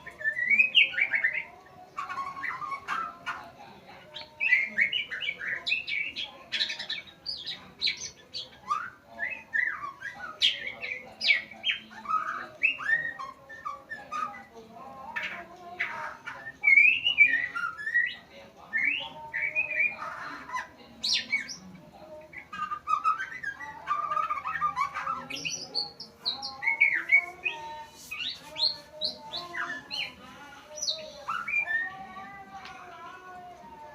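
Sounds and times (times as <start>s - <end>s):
songbird singing whistles and chirps: 0.0s - 33.9s.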